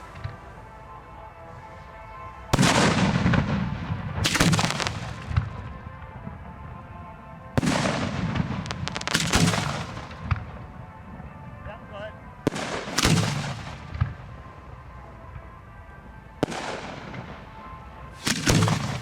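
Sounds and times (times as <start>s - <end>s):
fireworks banging: 2.5s - 6.2s, 7.6s - 10.7s, 18.2s - 19.0s.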